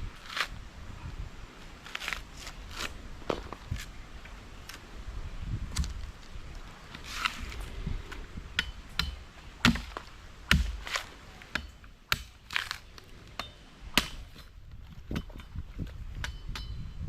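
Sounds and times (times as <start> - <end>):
sharp cracks and knocks: 7.0 - 16.7.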